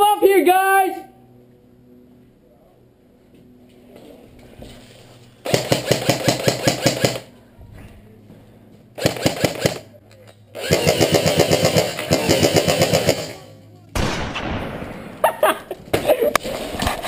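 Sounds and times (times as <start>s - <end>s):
airsoft rifle firing full-auto: 5.4s - 7.3s, 9.0s - 9.9s, 10.6s - 15.3s.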